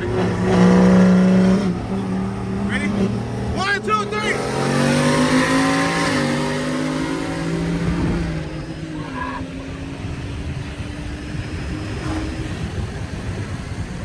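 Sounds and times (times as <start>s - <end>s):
vehicles accelerating hard: 0.0s - 14.0s.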